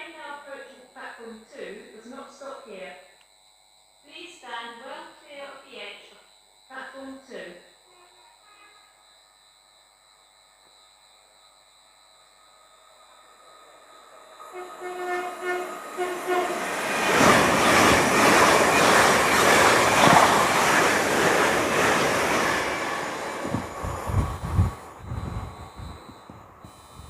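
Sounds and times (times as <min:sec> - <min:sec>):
train horn: 0:07.9 - 0:09.0, 0:14.4 - 0:18.2
train wheels roaring on rails: 0:13.4 - 0:27.0.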